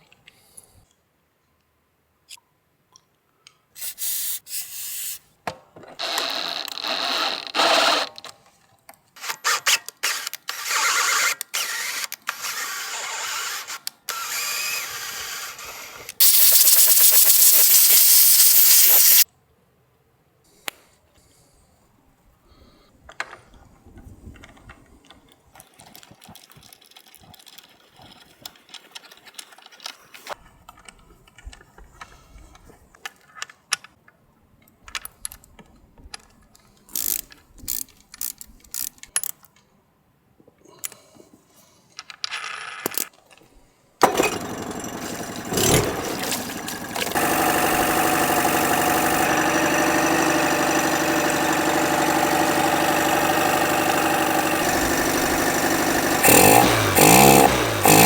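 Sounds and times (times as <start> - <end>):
outboard motor running: 44.1 - 58.0.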